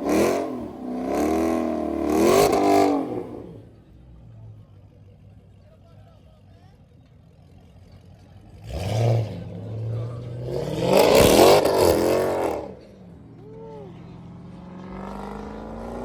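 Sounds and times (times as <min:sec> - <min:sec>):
car engine revving: 0:00.0 - 0:03.9, 0:08.4 - 0:16.0.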